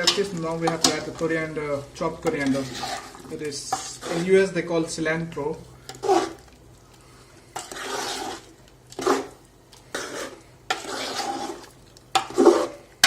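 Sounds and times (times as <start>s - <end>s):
utensil scraping a pot: 2.0s - 4.5s, 5.8s - 6.4s, 7.5s - 12.8s.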